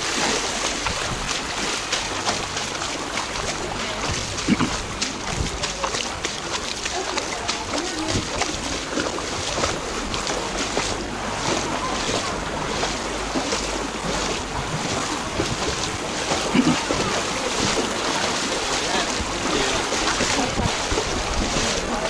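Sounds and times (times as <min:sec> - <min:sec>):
wind buffeting the microphone: 0:00.0 - 0:06.6, 0:07.4 - 0:13.4, 0:14.0 - 0:22.0
short splashes: 0:00.0 - 0:22.0
water washing: 0:00.0 - 0:22.0
faint voices: 0:00.3 - 0:22.0.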